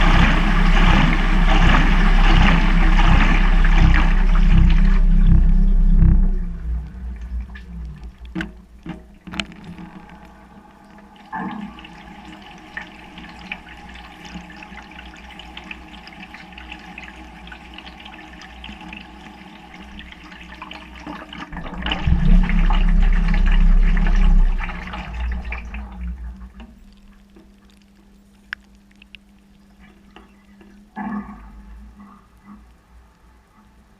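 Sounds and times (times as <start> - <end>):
water sloshing in washing machine: 0.0 - 5.2
low rumble: 0.0 - 15.1, 21.5 - 27.9
quiet steady hum: 0.0 - 33.9.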